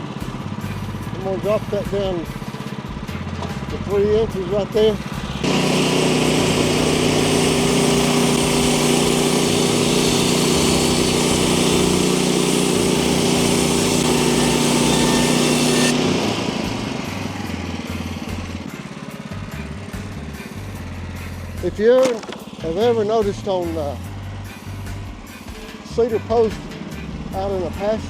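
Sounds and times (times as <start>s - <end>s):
bandsaw mill blade running: 0.0s - 24.1s, 25.2s - 28.0s
engine idling: 0.0s - 28.0s.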